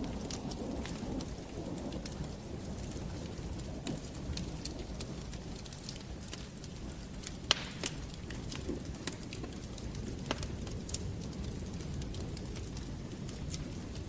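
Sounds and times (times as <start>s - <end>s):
wood fire crackling: 0.0s - 14.0s
loud pop from fire: 7.4s - 9.6s.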